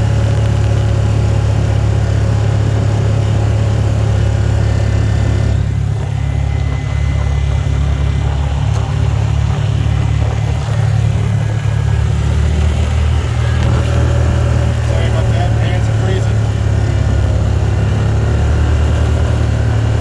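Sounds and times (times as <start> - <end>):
engine and road noise hum: 0.0 - 20.0.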